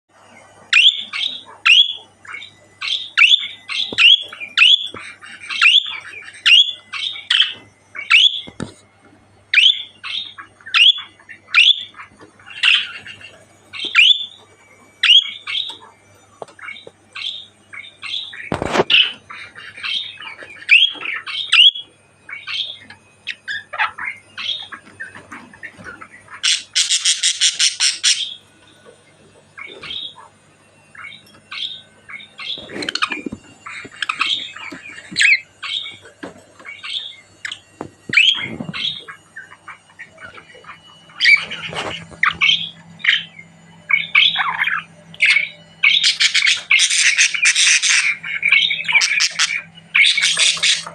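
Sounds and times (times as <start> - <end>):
budgerigar chirping: 0.7 - 8.5, 9.5 - 14.4, 15.0 - 15.7, 25.8 - 28.4, 36.7 - 50.9
fast buzzing chatter: 9.6 - 28.5, 29.5 - 50.9.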